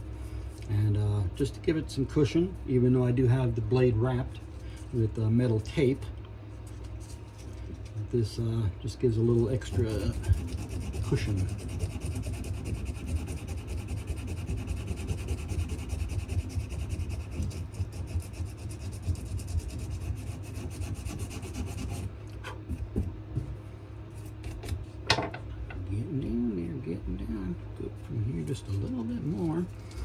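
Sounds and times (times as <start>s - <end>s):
sandpaper rubbing on wood: 9.3s - 22.1s.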